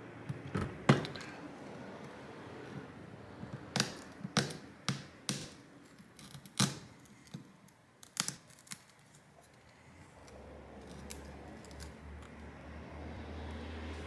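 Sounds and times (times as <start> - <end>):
glass clicking and cracking: 5.3 - 9.2.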